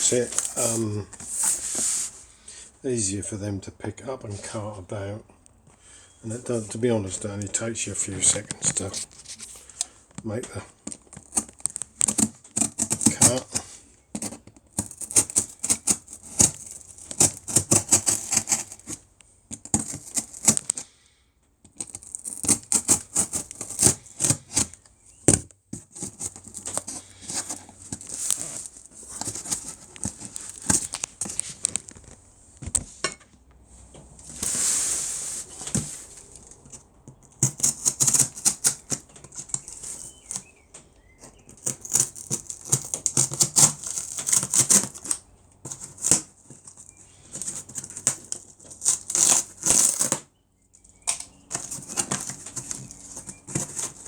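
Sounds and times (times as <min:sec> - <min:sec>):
packing tape pulled off roll: 0:00.0 - 0:02.2, 0:10.8 - 0:20.9, 0:21.7 - 0:32.1, 0:37.3 - 0:40.5, 0:41.4 - 0:50.3, 0:51.1 - 0:54.0.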